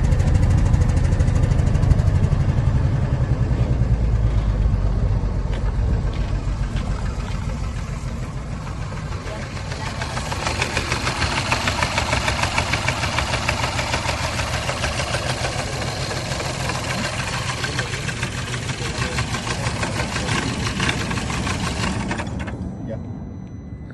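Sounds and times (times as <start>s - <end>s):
car engine idling with knocking: 0.0s - 22.6s.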